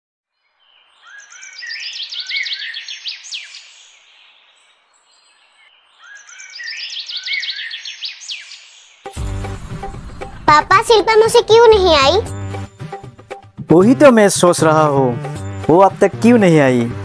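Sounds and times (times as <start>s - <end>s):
bird chirps and falling whistles: 1.0s - 3.7s, 6.0s - 8.6s.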